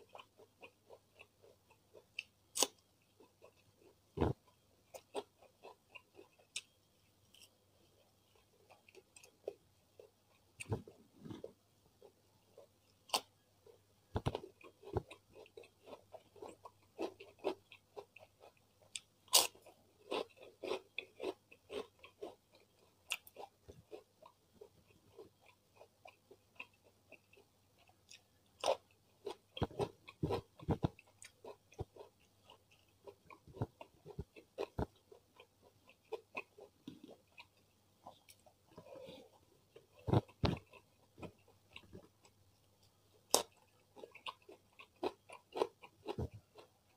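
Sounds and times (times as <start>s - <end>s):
chewing crisp vegetables: 0.0s - 46.9s.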